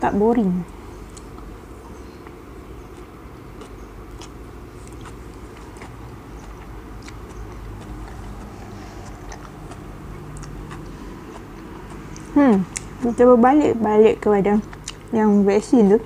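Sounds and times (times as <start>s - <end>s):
steady low hum: 0.0s - 16.0s
chewing noodles: 1.0s - 13.8s, 14.6s - 15.1s
wet mouth clicks: 2.2s - 13.1s, 14.6s - 15.1s.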